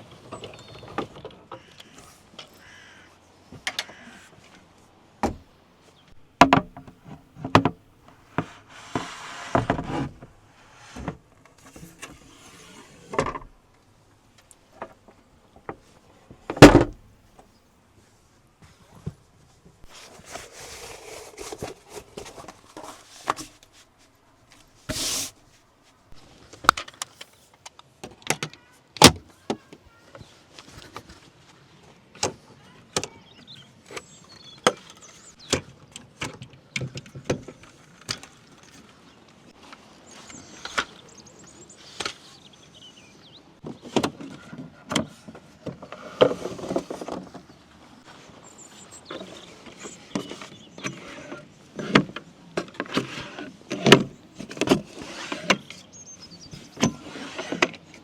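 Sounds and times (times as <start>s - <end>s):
scraping and rustling: 8.1s - 13.6s, 18.0s - 27.6s.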